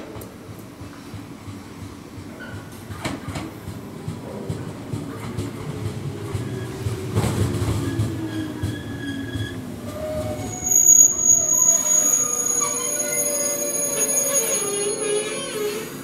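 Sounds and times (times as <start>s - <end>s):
electric train pulling in: 0.4s - 16.0s
wheels and brakes squealing: 6.3s - 16.0s.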